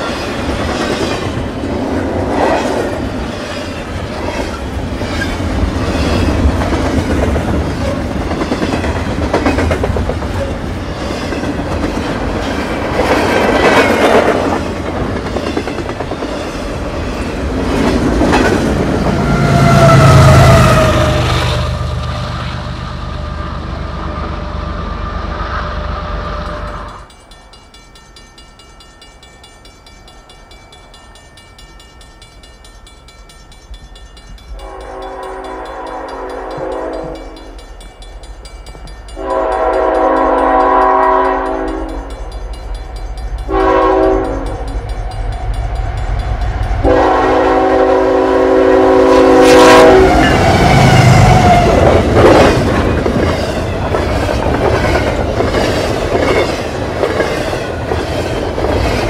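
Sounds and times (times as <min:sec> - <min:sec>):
train passing with loud rush: 0:00.0 - 0:59.0
locomotive horn: 0:19.1 - 0:24.6, 0:34.6 - 0:37.4, 0:39.2 - 0:42.0, 0:43.5 - 0:44.6, 0:46.8 - 0:51.9.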